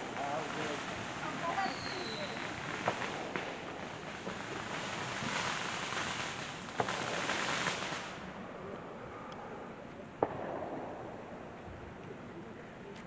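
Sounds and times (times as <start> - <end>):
fireworks sharp pops: 0.0 - 8.3, 10.2 - 11.4
fireworks crackling hiss: 0.0 - 13.0.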